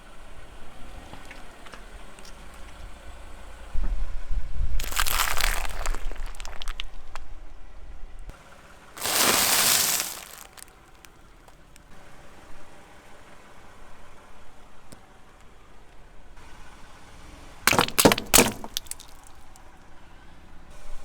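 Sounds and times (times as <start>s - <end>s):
tyre crushing objects: 4.8s - 6.8s, 9.0s - 10.7s, 17.7s - 19.4s.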